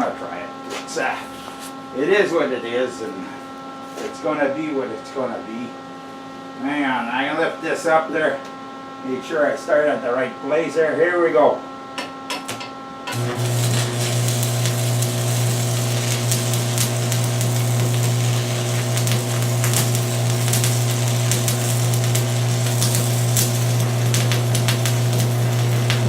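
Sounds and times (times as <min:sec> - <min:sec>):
arc welding crackling and popping: 0:12.3 - 0:26.0
welder low buzz: 0:12.5 - 0:26.0.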